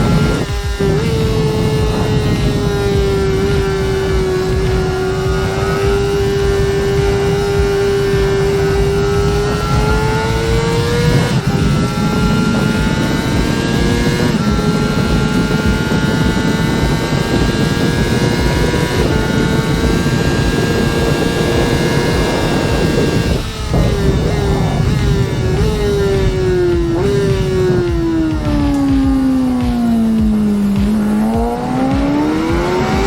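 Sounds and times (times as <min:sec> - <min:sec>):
motorcycle engine running under load: 0:00.0 - 0:33.0.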